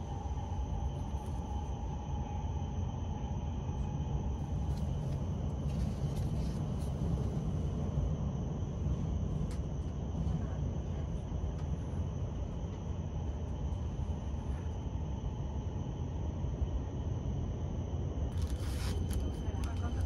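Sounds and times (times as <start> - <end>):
train running rumble: 3.1 - 14.8.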